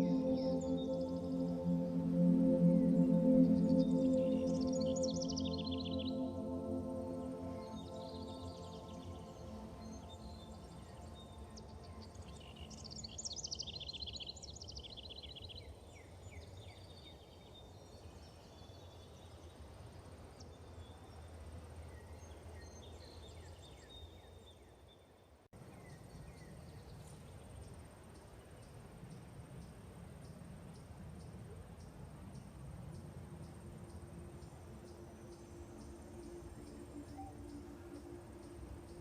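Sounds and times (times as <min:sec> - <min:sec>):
birds chirping: 0:00.0 - 0:13.2.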